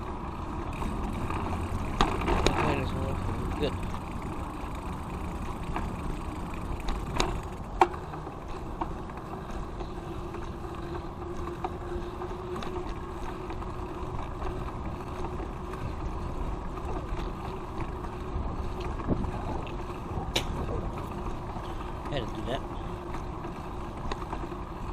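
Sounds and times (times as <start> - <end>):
bicycle tyres rumbling on pavement: 0.0 - 24.9
wind on microphone: 18.4 - 21.2.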